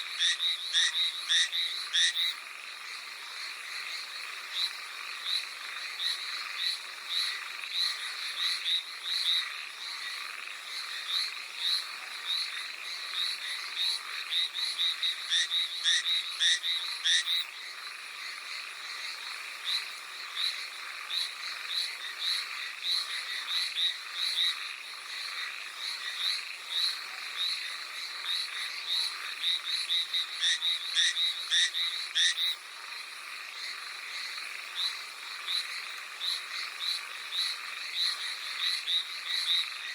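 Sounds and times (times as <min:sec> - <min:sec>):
tree frogs croaking: 0:00.0 - 0:39.9.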